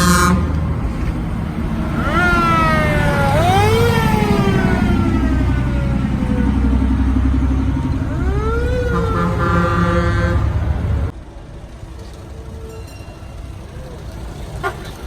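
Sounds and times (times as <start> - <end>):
air horn blast: 0.0 - 0.6, 8.1 - 11.1
emergency siren wailing: 0.0 - 11.1
heavy engine rumble: 0.0 - 15.0.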